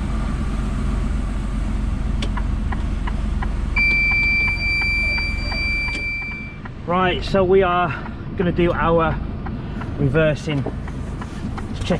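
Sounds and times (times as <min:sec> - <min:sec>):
diesel engine idling: 0:00.0 - 0:11.9
light ticking: 0:02.2 - 0:11.9
high-pitched electronic warning tone: 0:03.8 - 0:06.6.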